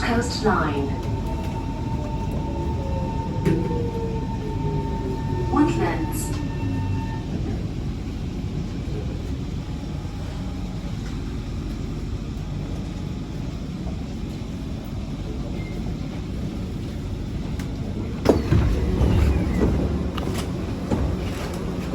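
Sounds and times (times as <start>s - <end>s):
train doors clattering open: 0.0s - 7.2s, 17.6s - 21.9s
train interior low rumble: 0.0s - 21.9s.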